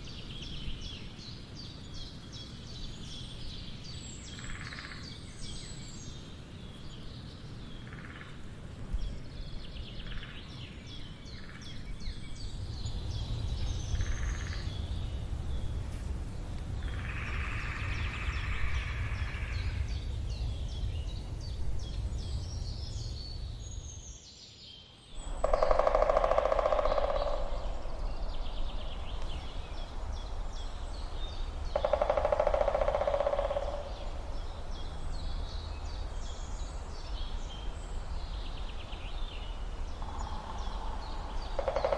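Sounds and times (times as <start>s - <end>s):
birds chirping: 0.0s - 41.9s
low background rumble: 3.9s - 24.2s, 25.2s - 41.8s
woodpecker drumming on wood: 25.4s - 27.8s, 31.7s - 34.3s, 41.5s - 41.9s.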